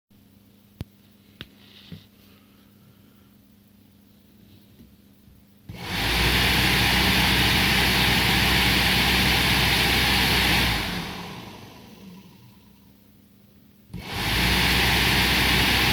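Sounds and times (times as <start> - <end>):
electric cooling fan running: 5.7 - 12.7, 13.9 - 15.9.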